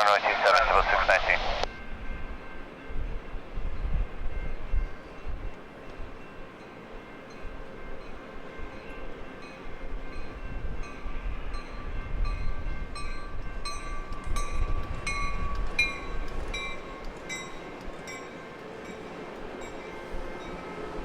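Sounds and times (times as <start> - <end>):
jet airliner passing: 0.0 - 1.7.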